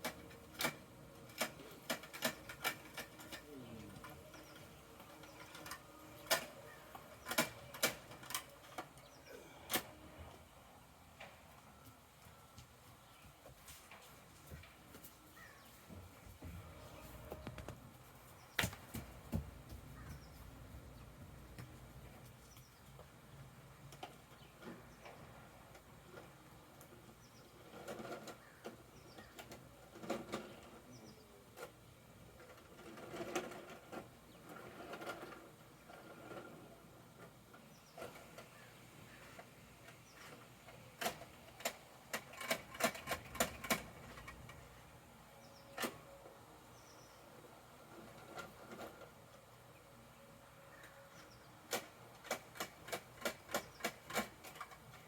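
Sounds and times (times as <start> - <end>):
toy truck plastic clicking: 0.0 - 10.0, 38.0 - 44.6, 51.7 - 55.0.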